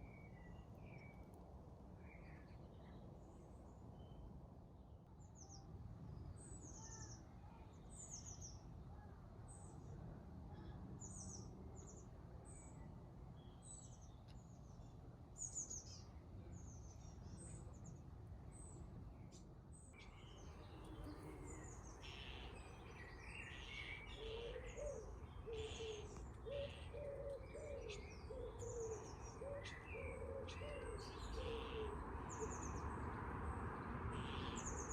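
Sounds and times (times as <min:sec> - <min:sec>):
bird cooing: 0:24.0 - 0:32.0.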